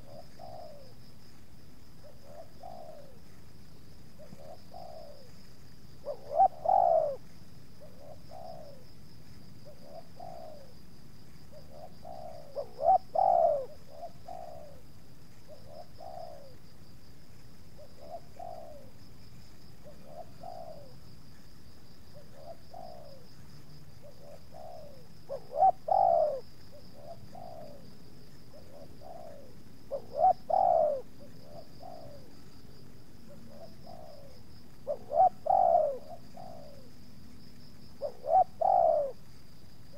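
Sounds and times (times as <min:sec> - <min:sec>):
doves cooing: 0:00.0 - 0:01.1, 0:02.0 - 0:09.0, 0:09.6 - 0:10.8, 0:11.5 - 0:16.7, 0:17.7 - 0:37.0, 0:37.7 - 0:39.9.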